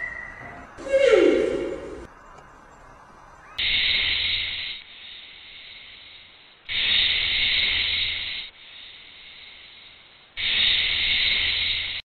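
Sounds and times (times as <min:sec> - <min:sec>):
animal hissing: 0:03.6 - 0:12.0.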